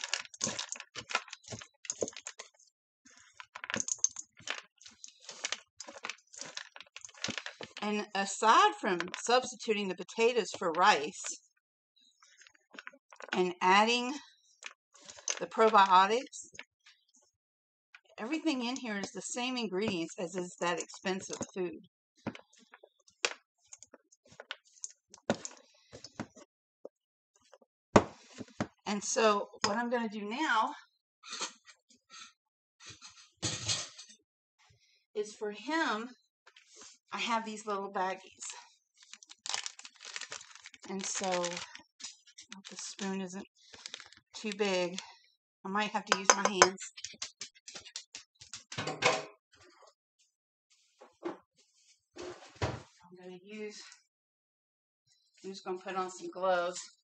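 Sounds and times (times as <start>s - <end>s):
kitchen utensils clicking and knocking: 46.1s - 49.3s.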